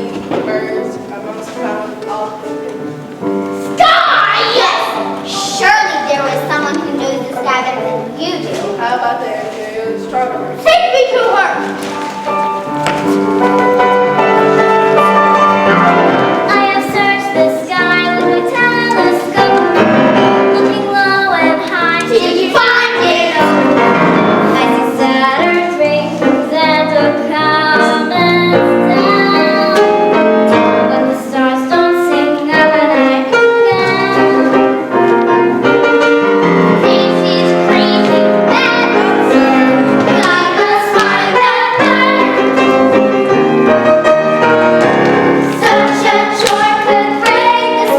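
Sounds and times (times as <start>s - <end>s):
piano accompaniment: 0.0s - 47.9s
children singing: 3.8s - 10.7s, 12.6s - 47.9s.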